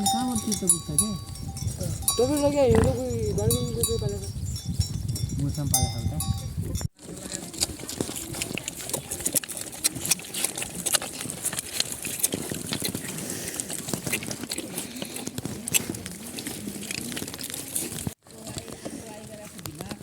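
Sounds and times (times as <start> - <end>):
pigs grunting: 7.0 - 18.1.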